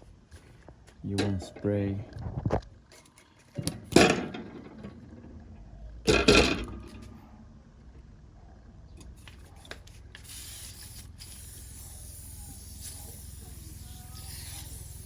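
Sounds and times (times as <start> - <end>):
metal rubbed on wet sandpaper: 10.2 - 15.0.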